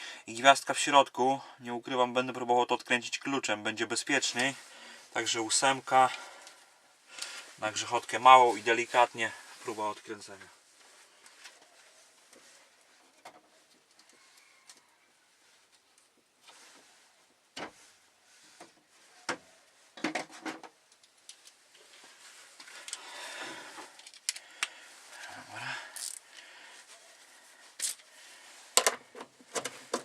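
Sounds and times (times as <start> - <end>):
scraping and rustling: 15.4 - 24.0.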